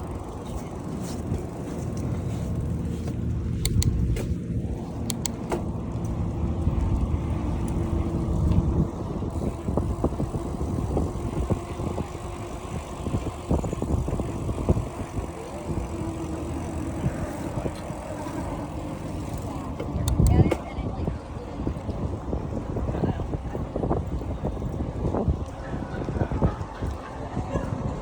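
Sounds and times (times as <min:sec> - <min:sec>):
bicycle clicks and rattles: 0:00.0 - 0:20.8
traffic passing: 0:00.0 - 0:22.6
road and wind rumble: 0:00.0 - 0:28.0.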